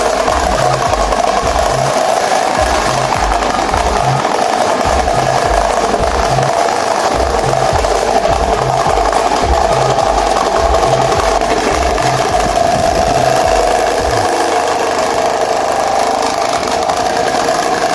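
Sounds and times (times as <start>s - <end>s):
electric fan whirring: 0.0s - 17.9s
low regular thump: 2.6s - 4.2s, 4.8s - 6.5s, 7.1s - 14.4s.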